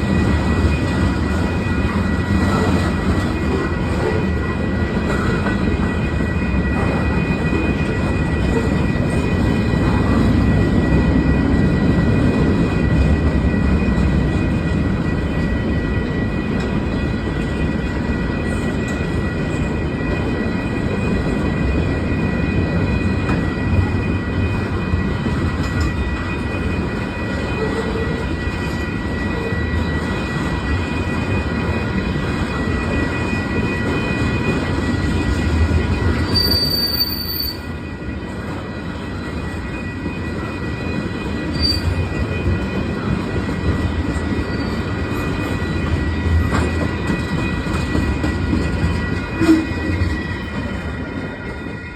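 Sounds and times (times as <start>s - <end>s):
freight train wheels rumbling on rail: 0.0s - 51.9s
high wheel squeal: 36.2s - 37.7s, 41.4s - 42.1s.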